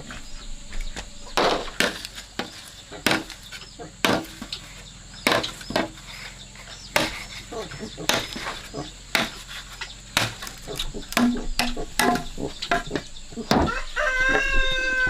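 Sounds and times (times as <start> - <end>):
blade chopping into wood: 1.4 - 4.6, 5.2 - 6.1, 6.9 - 13.8.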